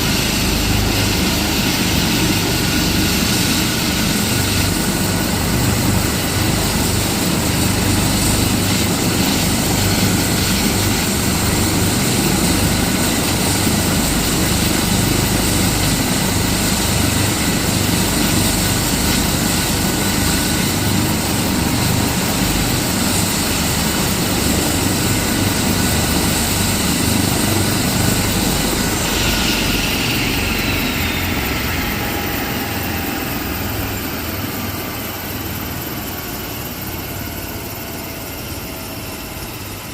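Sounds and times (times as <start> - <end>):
helicopter blades beating: 0.0 - 39.9
helicopter turbine and rotor: 0.0 - 39.9
high whine falling in pitch: 28.0 - 34.6.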